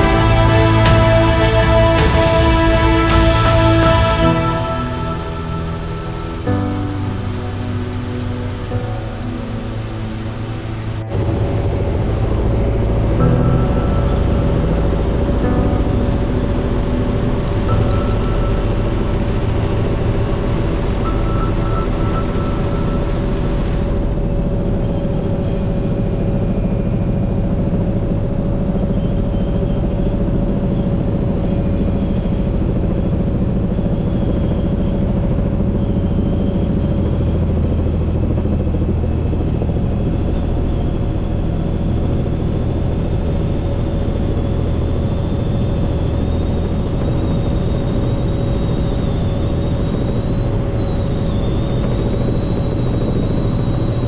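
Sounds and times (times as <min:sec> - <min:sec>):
helicopter engine and rotor: 0:16.1 - 0:54.0.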